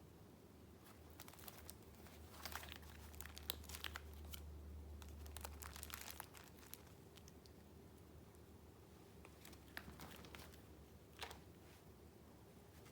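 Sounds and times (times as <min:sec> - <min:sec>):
faint low hum: 0:00.0 - 0:12.9
paper rustling and crinkling: 0:00.8 - 0:04.4, 0:05.0 - 0:07.3, 0:09.2 - 0:11.9.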